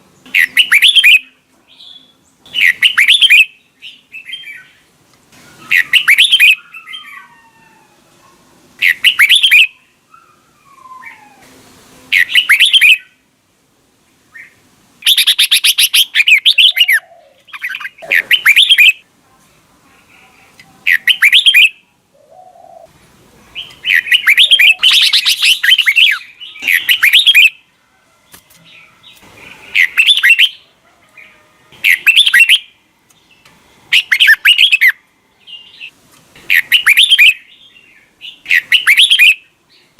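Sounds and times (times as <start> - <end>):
bulbul warbling song: 0.2 - 1.3, 5.7 - 6.6, 8.8 - 9.8, 12.1 - 13.2, 14.4 - 19.0, 20.9 - 21.8, 23.6 - 27.6, 29.7 - 30.6, 31.8 - 32.8, 33.9 - 35.0, 36.5 - 37.5, 38.4 - 39.5.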